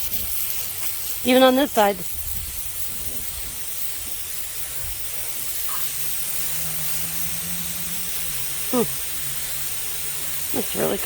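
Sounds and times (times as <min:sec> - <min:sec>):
band sawmill hissing: 0:00.0 - 0:11.0
low hum rising in pitch: 0:05.8 - 0:10.4.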